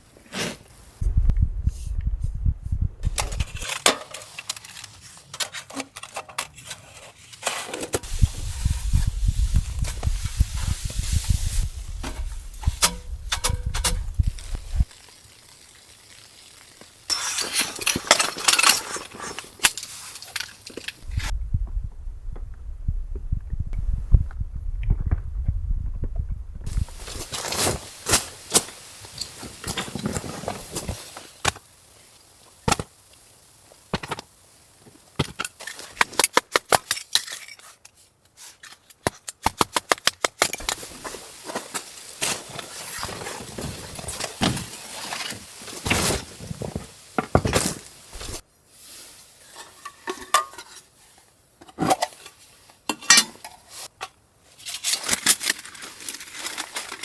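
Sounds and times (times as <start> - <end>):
utensils clinking against cookware: 12.0 - 14.2, 17.1 - 21.0, 49.5 - 50.9.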